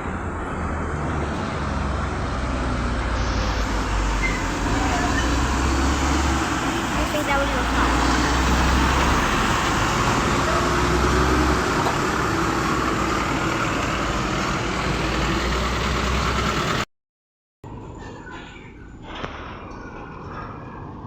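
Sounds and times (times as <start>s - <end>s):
road traffic rushing: 0.0s - 16.9s.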